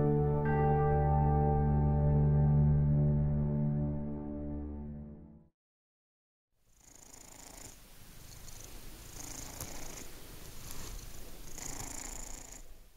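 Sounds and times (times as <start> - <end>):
cat purring: 6.7 - 12.9.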